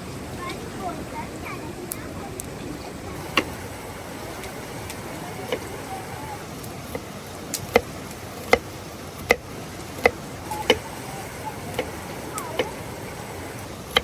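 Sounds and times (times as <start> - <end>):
steady background hiss: 0.0 - 14.0
chopping strokes: 6.7 - 14.0.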